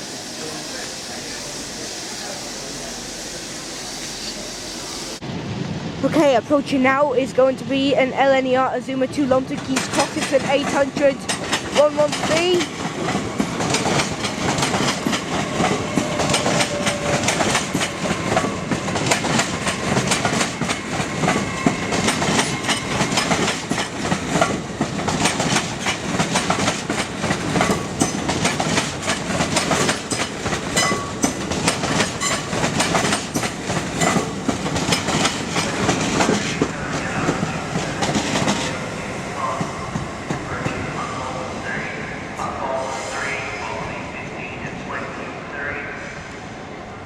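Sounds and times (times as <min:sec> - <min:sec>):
train wheels clattering over rail joints: 0:09.5 - 0:38.7.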